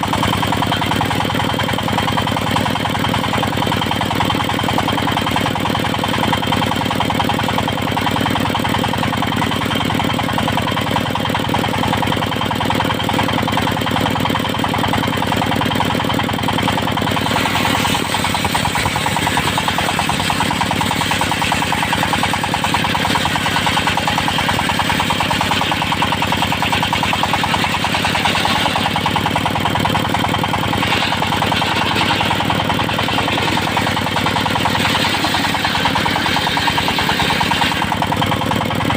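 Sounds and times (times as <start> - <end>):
sawmill engine drone: 0.0 - 38.9
saw blade cutting wood: 15.3 - 38.9.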